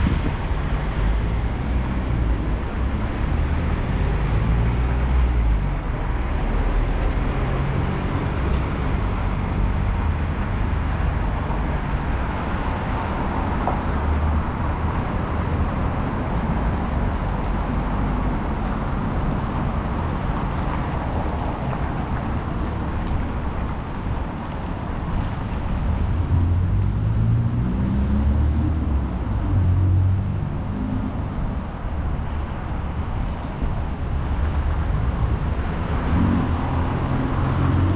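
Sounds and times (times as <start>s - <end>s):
wind buffeting microphone: 0.0s - 2.7s
city street traffic: 0.0s - 37.9s.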